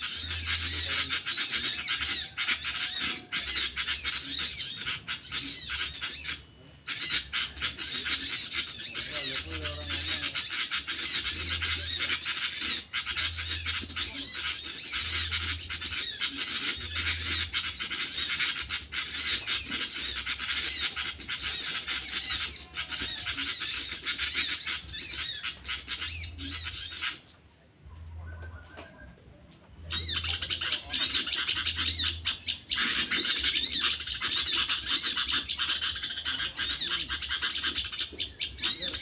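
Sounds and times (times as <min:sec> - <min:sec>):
rapid bird chattering: 0:00.0 - 0:27.5, 0:28.2 - 0:39.0.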